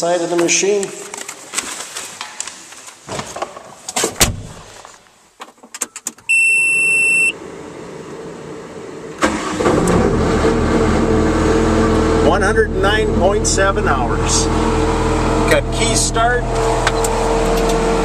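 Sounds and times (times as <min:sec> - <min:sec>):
diesel engine starting and running: 0:06.1 - 0:18.0
electronic warning beep: 0:06.3 - 0:07.4.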